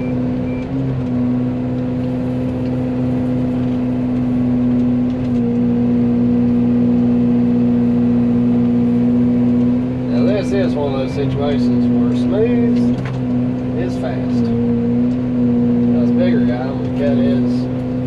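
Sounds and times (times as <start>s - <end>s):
travel alarm beep: 0.0s - 0.7s
excavator mulcher humming: 0.0s - 18.0s.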